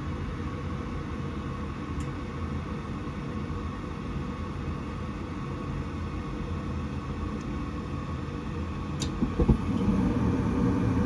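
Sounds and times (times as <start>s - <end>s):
gas furnace humming: 5.6s - 11.0s.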